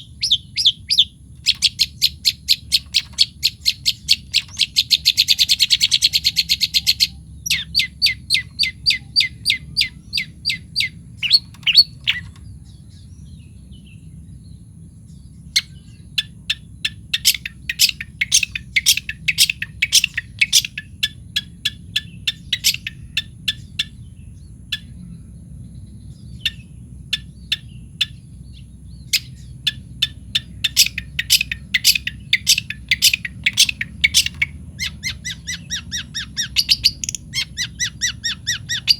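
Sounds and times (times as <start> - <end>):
bird harsh repeated calls: 0.0 - 12.4, 15.6 - 24.0, 29.0 - 38.9
low background hum: 0.0 - 38.9.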